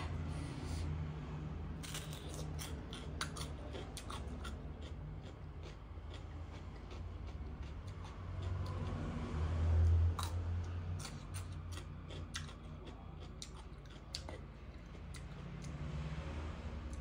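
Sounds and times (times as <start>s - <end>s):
crunchy chewing: 1.8s - 16.2s
wet mouth sounds: 11.0s - 15.5s.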